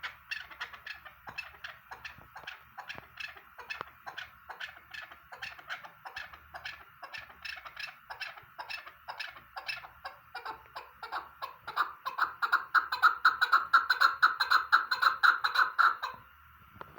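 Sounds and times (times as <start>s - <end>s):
partridge clucking calls: 0.0s - 16.3s.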